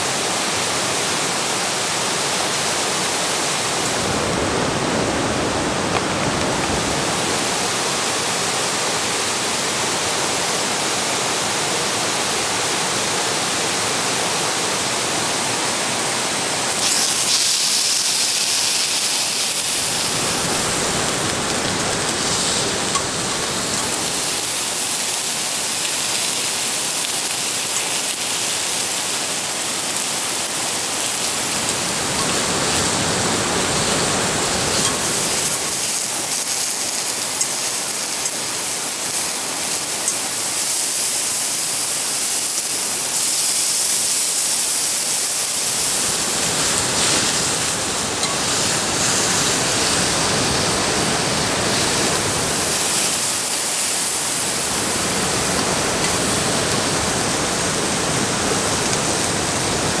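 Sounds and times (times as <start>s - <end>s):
steak sizzling in a skillet: 16.7s - 59.6s.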